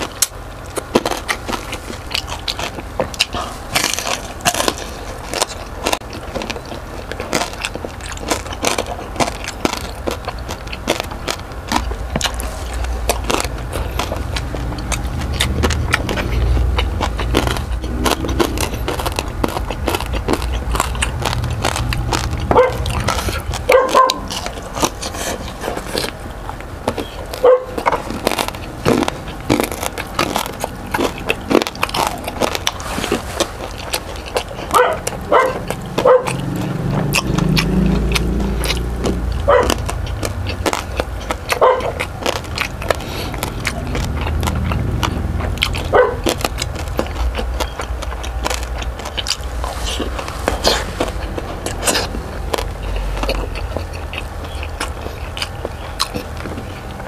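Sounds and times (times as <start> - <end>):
person chewing crunchy food: 0.0 - 57.0
low rumble: 9.5 - 57.0.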